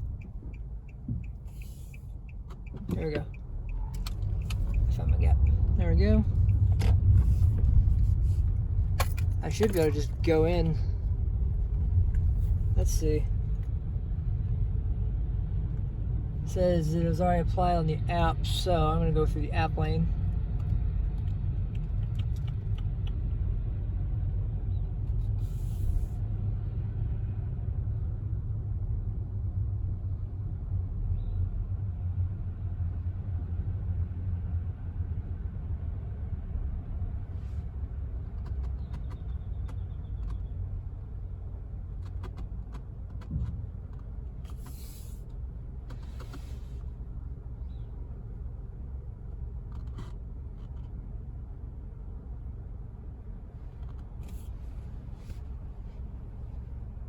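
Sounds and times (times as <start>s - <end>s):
car engine idling: 0.0s - 14.3s, 37.2s - 57.0s
short hisses: 44.5s - 45.2s.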